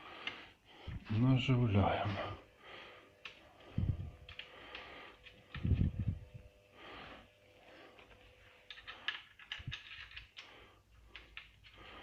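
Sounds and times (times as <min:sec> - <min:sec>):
small bolts clicking and tapping: 0:08.6 - 0:10.5.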